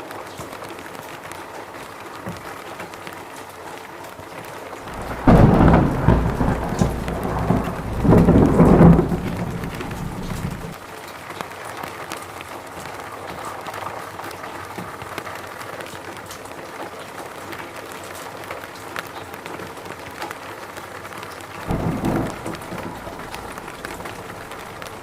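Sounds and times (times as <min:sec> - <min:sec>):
steady rain falling: 0:00.0 - 0:25.0
thunderclap rumbling: 0:04.8 - 0:10.8, 0:21.6 - 0:25.0.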